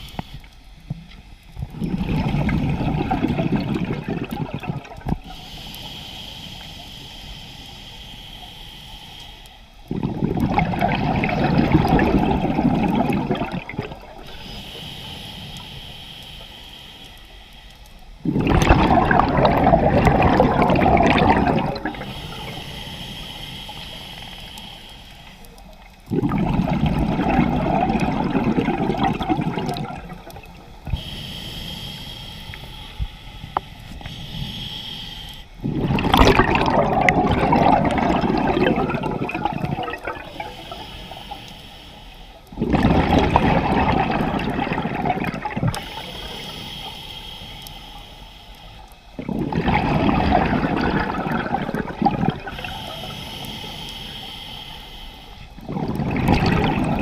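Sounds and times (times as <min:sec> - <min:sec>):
regulator inhale hiss: 0:00.0 - 0:02.0, 0:05.1 - 0:10.2, 0:12.5 - 0:18.3, 0:19.3 - 0:26.7, 0:28.2 - 0:37.9, 0:38.6 - 0:42.6, 0:43.5 - 0:49.3, 0:51.5 - 0:56.0
diver exhaling bubbles: 0:01.7 - 0:05.2, 0:09.9 - 0:14.5, 0:18.2 - 0:22.6, 0:26.1 - 0:31.0, 0:35.6 - 0:40.9, 0:42.5 - 0:46.0, 0:49.2 - 0:53.1, 0:55.6 - 0:57.0.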